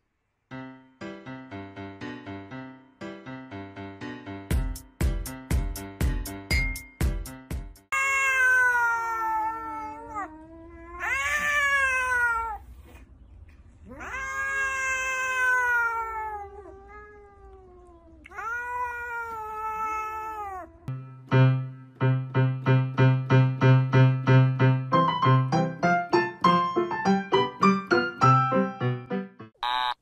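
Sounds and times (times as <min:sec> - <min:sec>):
rhythmic piano music: 0:00.5 - 0:07.9, 0:20.9 - 0:29.6
cat meowing: 0:07.9 - 0:13.0, 0:13.8 - 0:20.9.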